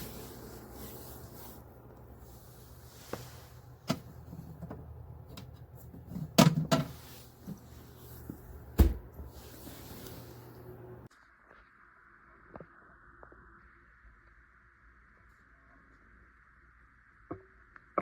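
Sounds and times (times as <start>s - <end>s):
plastic fridge clicks and knocks: 6.1s - 7.0s, 8.7s - 9.2s
heavy thump: 8.8s - 9.3s.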